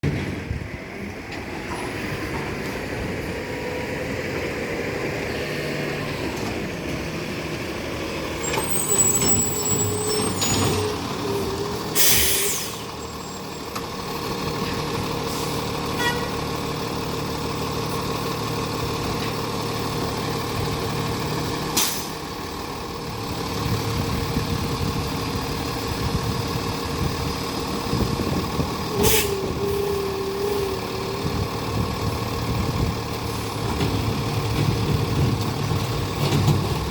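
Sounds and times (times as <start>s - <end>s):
garbage truck running: 0.0s - 36.9s
wavering squeal: 8.4s - 13.6s
air brake hisses: 12.0s - 12.9s, 29.0s - 29.5s.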